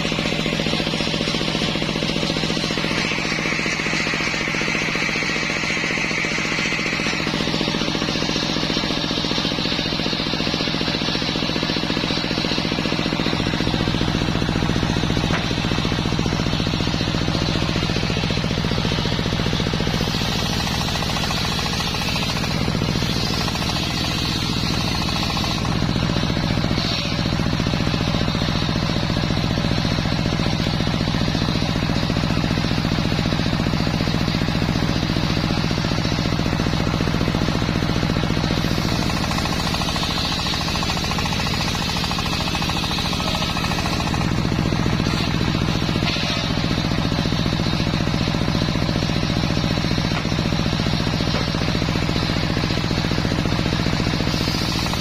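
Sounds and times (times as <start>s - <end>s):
circular sawmill humming: 0.0s - 55.0s
saw blade cutting log: 0.0s - 55.0s.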